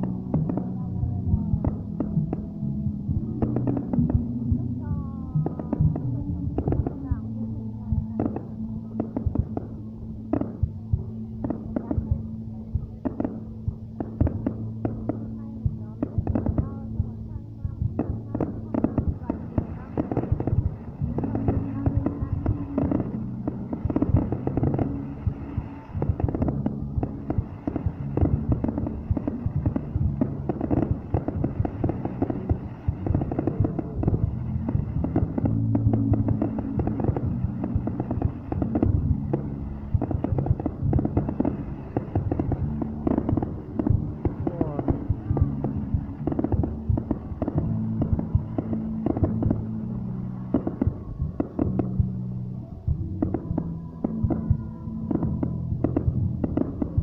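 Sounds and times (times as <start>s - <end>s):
fireworks bangs and crackles: 0.0s - 57.0s
steady low hum: 0.0s - 57.0s.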